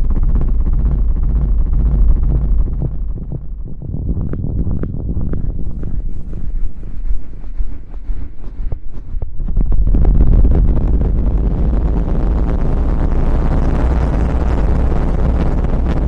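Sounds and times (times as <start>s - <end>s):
scratching on microphone: 4.0s - 16.0s.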